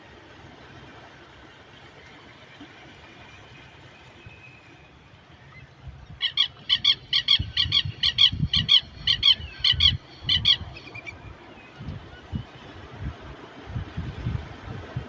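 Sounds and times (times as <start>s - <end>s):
sea ambience: 0.0s - 15.0s
bird calling rapidly: 6.2s - 11.2s.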